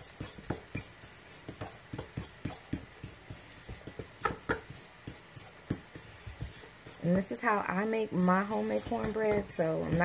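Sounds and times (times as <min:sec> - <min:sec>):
utensil scraping mixing bowl: 0:00.0 - 0:10.0.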